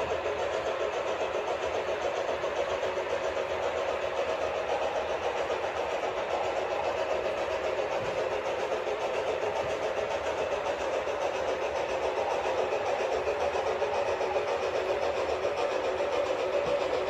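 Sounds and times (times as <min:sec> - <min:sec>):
model train running on track: 0:00.0 - 0:17.0.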